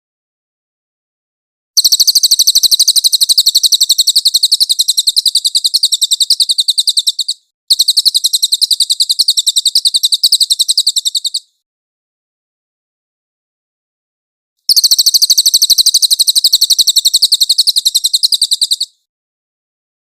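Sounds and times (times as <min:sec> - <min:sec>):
bird singing rapid trill: 0:01.8 - 0:11.6, 0:14.7 - 0:19.1.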